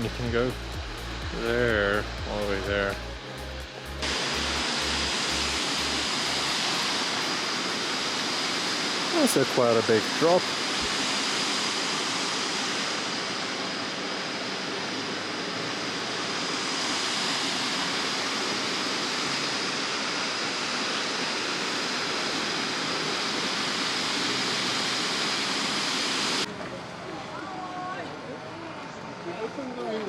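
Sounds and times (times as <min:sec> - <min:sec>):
waterfall rushing: 0:03.9 - 0:26.6.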